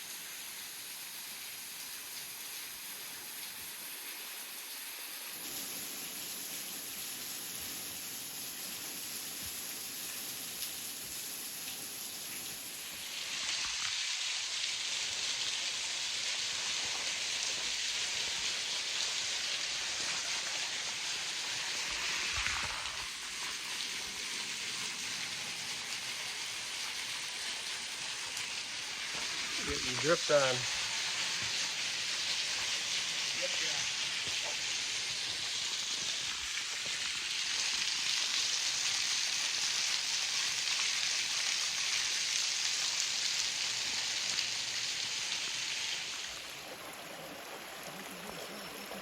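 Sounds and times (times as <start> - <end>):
water dripping and pattering: 25.8 - 49.0.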